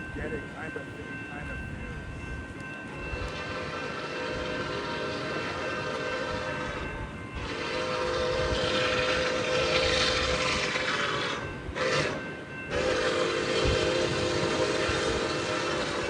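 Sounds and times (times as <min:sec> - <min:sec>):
passing train rumble: 0:00.0 - 0:16.0
locomotive air horn: 0:03.2 - 0:16.0.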